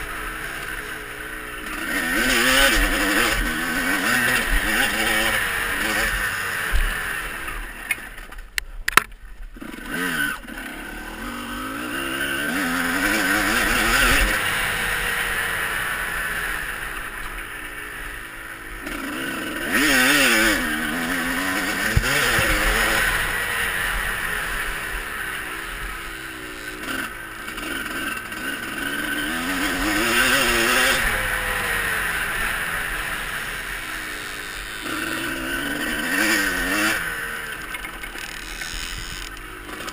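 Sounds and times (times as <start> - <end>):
motocross bike engine revving: 0.0 - 8.3, 9.0 - 39.9.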